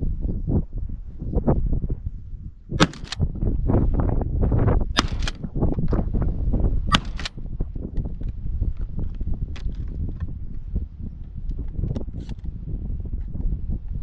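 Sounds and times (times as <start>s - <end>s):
wind rumble on microphone: 0.0s - 14.0s
shotgun firing: 2.8s - 3.2s, 5.0s - 5.4s, 6.9s - 7.4s.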